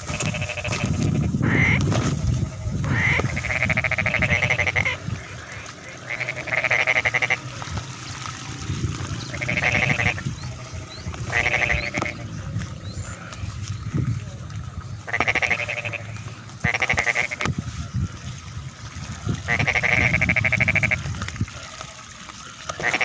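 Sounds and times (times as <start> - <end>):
frogs calling: 0.0 - 23.0
low rumble: 7.4 - 15.1.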